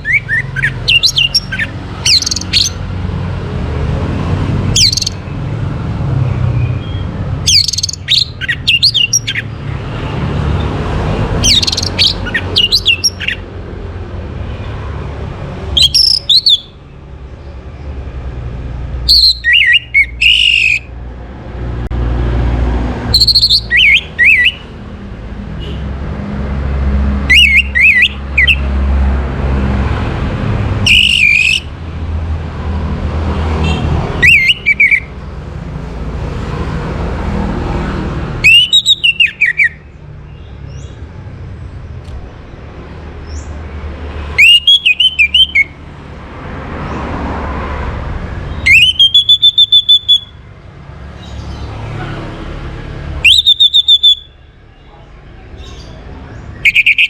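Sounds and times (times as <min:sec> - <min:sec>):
bird singing whistled phrases: 0:00.0 - 0:02.8, 0:04.8 - 0:05.2, 0:06.6 - 0:09.4, 0:11.4 - 0:13.4, 0:15.8 - 0:16.8, 0:19.1 - 0:20.9, 0:23.1 - 0:24.6, 0:27.3 - 0:28.7, 0:30.8 - 0:31.7, 0:34.2 - 0:35.1, 0:38.4 - 0:39.8, 0:44.3 - 0:45.8, 0:48.6 - 0:50.4, 0:53.2 - 0:54.4, 0:56.5 - 0:57.0.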